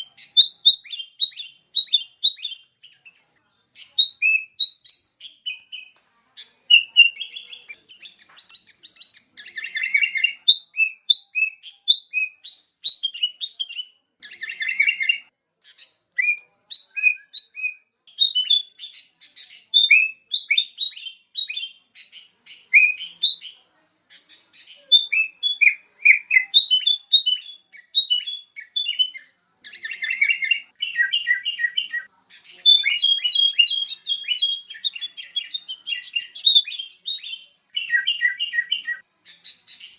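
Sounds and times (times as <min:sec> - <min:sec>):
bird chatter: 0:00.0 - 0:39.9
bulbul whistled calls: 0:03.8 - 0:06.0, 0:06.7 - 0:23.6, 0:24.2 - 0:39.9.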